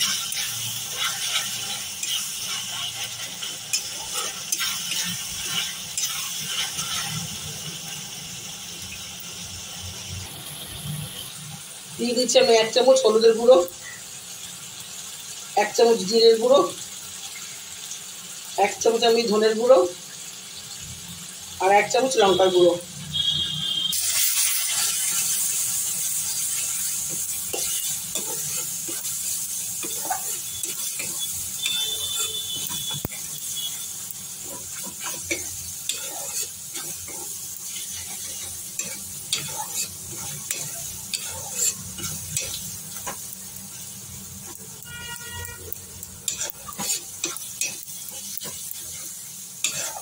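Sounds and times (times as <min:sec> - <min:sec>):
metal spatula scraping pan: 0:00.0 - 0:07.3, 0:26.3 - 0:43.8, 0:44.4 - 0:50.0
spices sizzling in hot oil: 0:00.0 - 0:50.0.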